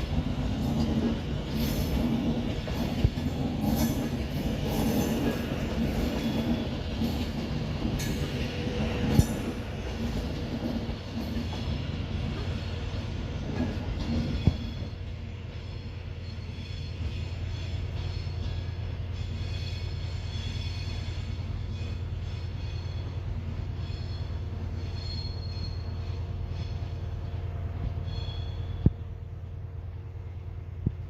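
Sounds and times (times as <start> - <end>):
train rumble: 0.0 - 31.0
wheels squealing: 23.8 - 27.0.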